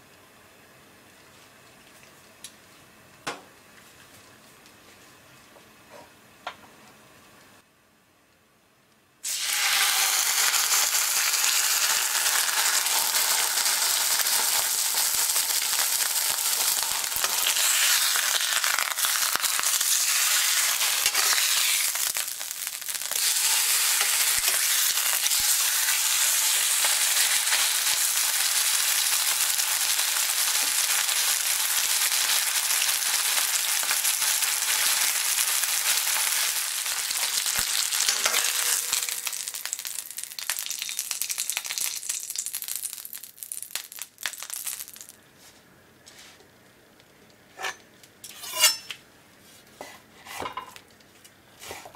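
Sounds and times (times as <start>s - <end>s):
steak sizzling in a frying pan: 9.2s - 45.1s.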